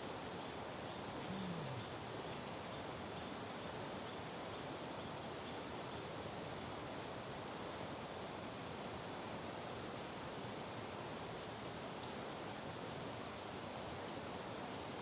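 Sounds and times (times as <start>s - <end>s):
short low voice: 1.2s - 2.0s.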